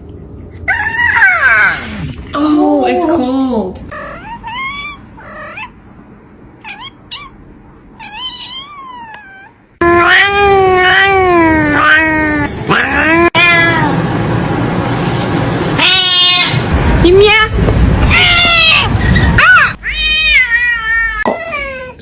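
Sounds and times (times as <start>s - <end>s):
cat meowing: 6.6s - 7.3s, 8.0s - 14.0s, 18.1s - 22.0s.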